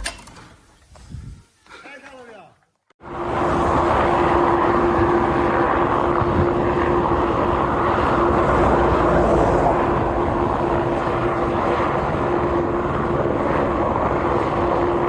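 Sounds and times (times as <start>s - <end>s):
large machine running: 3.0s - 15.0s.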